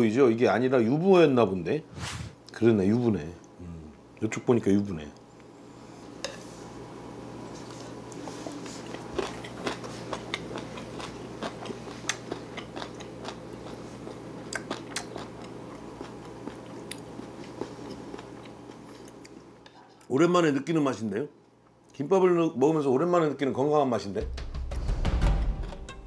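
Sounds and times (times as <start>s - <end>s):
steady low hum: 0.0s - 20.3s
person chewing crunchy food: 7.7s - 19.4s.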